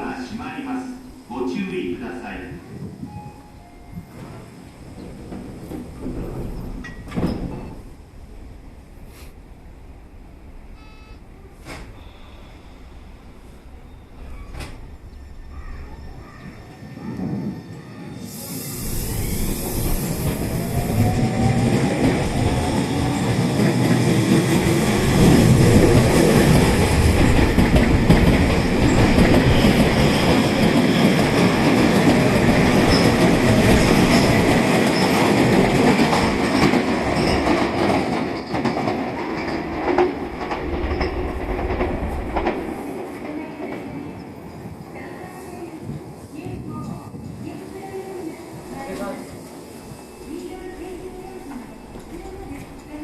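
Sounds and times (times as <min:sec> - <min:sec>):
train wheels rumbling: 0:00.0 - 0:53.0
wheels clacking over rail joints: 0:22.0 - 0:43.4.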